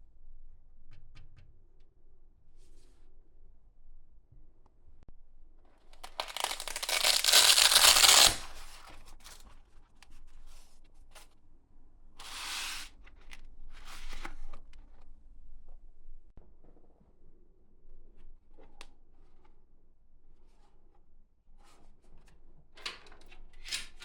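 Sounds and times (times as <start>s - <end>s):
packaging tearing: 6.0s - 8.8s.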